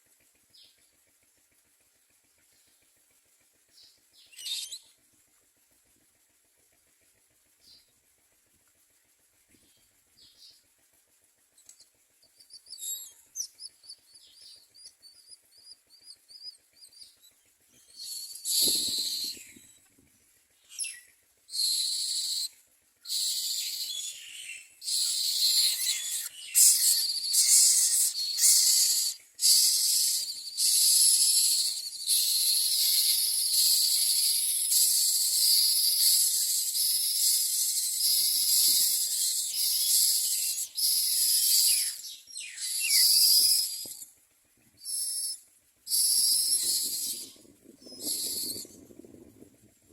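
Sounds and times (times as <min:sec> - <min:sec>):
nestlings hissing begging calls: 0:17.8 - 0:19.5, 0:20.7 - 0:44.0, 0:44.8 - 0:48.6.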